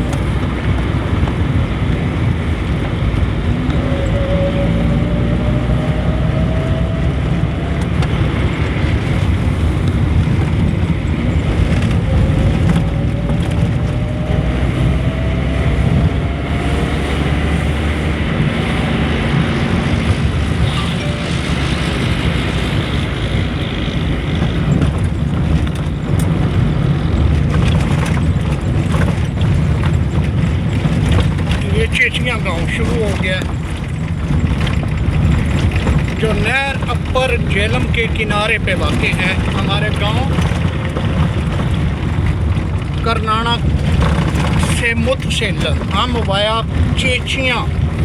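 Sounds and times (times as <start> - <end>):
road and wind noise: 0.0 - 48.0
vehicle engine rumble: 0.0 - 48.0
faint rising whine: 16.2 - 23.6.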